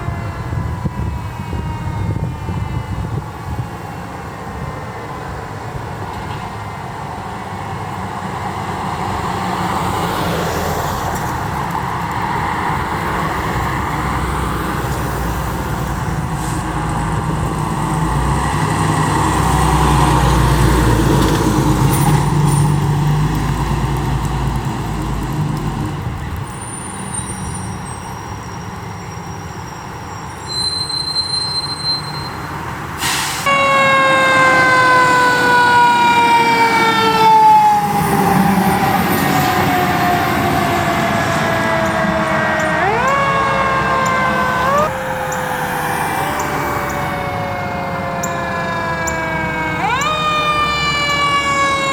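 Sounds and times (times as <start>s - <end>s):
siren wail falling in pitch: 0.0s - 4.1s, 33.5s - 51.9s
fire truck engine rumble: 0.0s - 31.0s, 31.7s - 51.9s.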